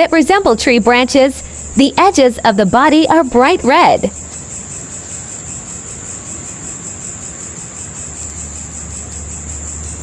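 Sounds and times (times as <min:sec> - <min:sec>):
crickets trilling: 0:00.0 - 0:10.0
faint low hum: 0:00.0 - 0:10.0.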